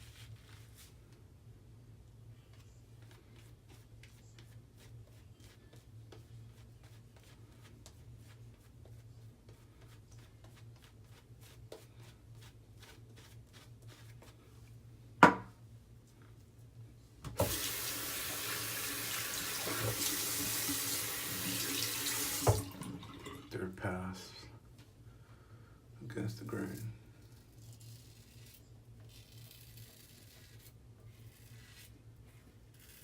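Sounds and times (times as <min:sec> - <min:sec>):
faucet running into sink: 0:17.4 - 0:23.5
razor scratching stubble: 0:27.4 - 0:31.9, 0:32.7 - 0:33.0.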